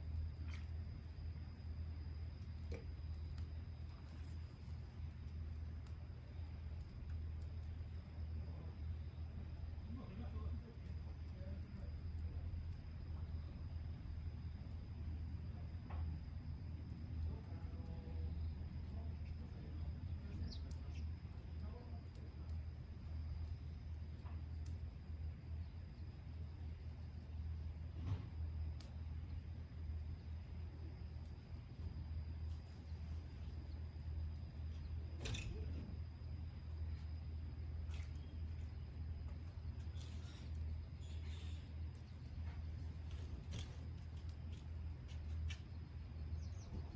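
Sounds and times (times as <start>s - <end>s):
crickets chirping: 0.0s - 46.9s.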